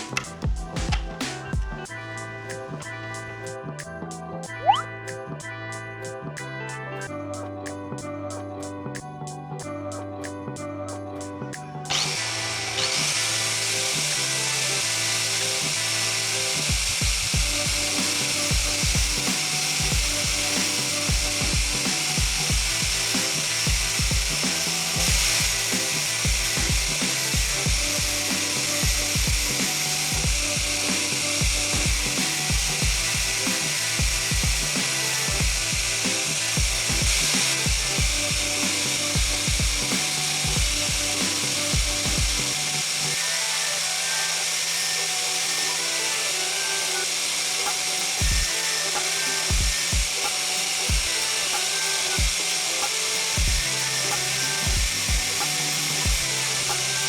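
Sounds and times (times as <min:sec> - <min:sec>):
power tool hissing: 0:00.0 - 0:05.2, 0:11.2 - 0:57.0
background music with bass beat: 0:00.0 - 0:12.3, 0:15.6 - 0:43.9, 0:47.0 - 0:57.0.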